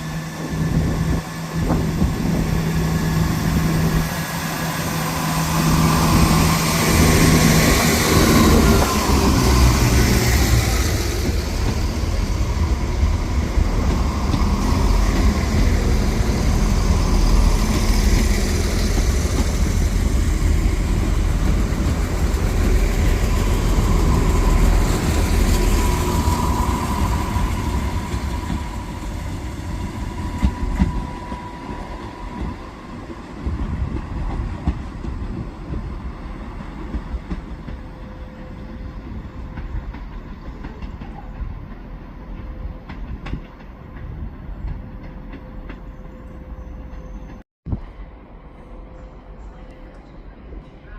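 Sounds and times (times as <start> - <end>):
train wheels clattering on rails: 4.8 - 38.2.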